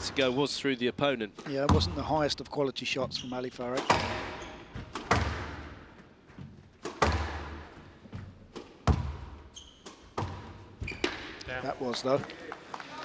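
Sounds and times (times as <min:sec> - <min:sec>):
squash ball hitting racket and wall: 0:01.4 - 0:02.4, 0:03.6 - 0:11.6
high squeak: 0:09.5 - 0:10.0.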